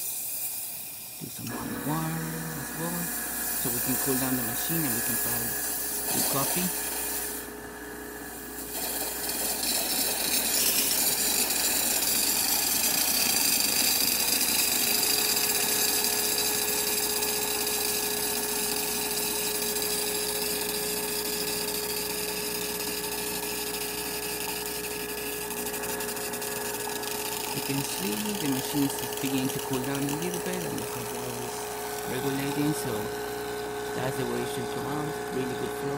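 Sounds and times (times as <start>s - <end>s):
hiss of hot water and steam: 0.0s - 7.4s
espresso machine pump buzzing: 0.0s - 35.9s.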